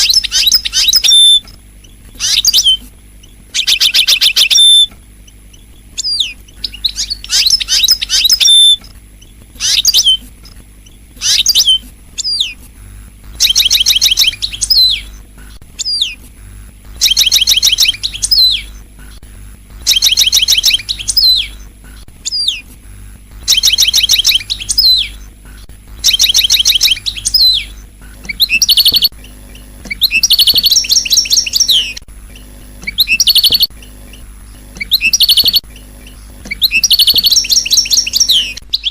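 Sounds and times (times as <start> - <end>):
finch trilled song: 0.0 - 12.6, 13.3 - 15.2, 15.8 - 16.2, 16.9 - 18.8, 19.8 - 22.7, 23.4 - 25.3, 26.0 - 38.9
finch call notes: 16.9 - 38.9.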